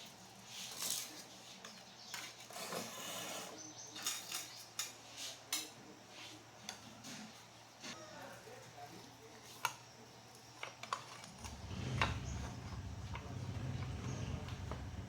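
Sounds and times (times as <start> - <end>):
scraping: 10.8 - 15.0.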